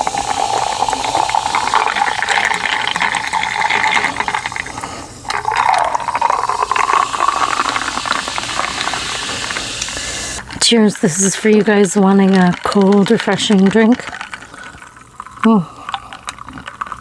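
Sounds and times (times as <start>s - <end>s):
sparkling water pouring into glass: 0.0s - 10.1s, 11.1s - 17.0s.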